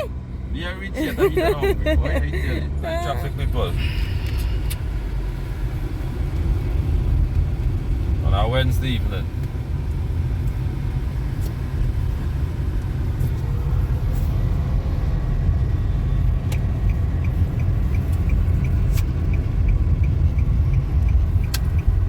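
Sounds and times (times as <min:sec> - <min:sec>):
faint regular ticking: 0:16.4 - 0:22.0.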